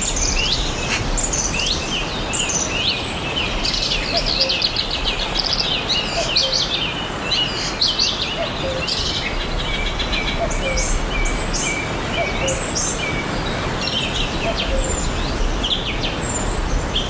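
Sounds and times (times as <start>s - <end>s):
songbirds chirping and trilling: 0.0s - 17.0s.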